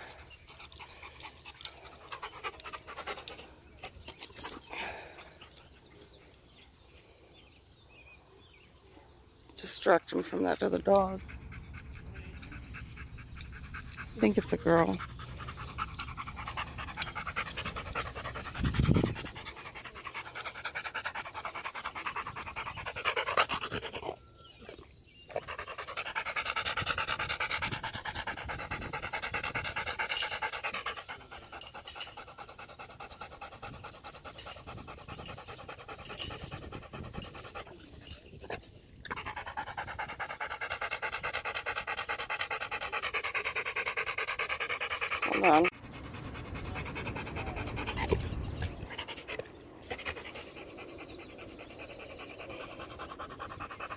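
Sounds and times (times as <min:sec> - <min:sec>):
dog panting rapidly: 0:10.9 - 0:24.6, 0:25.3 - 0:38.2, 0:39.1 - 0:53.9.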